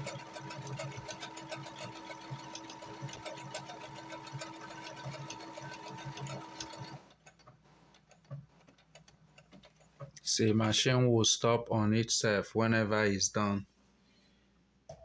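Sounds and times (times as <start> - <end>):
sewing machine motor whine: 0.0 - 7.2.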